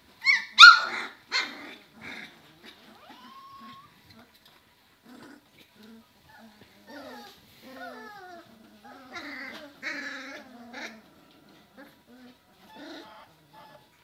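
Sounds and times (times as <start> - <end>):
puppies whining: 0.2 - 4.4, 5.1 - 14.0.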